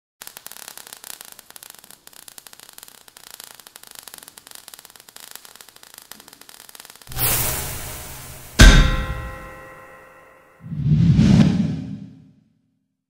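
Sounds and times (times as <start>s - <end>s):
faint crackling static: 0.2s - 7.1s.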